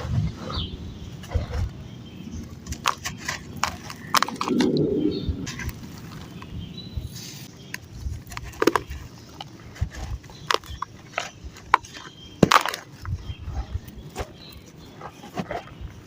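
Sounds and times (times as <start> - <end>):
cement chunks crumbling and cracking: 8.2 - 13.2.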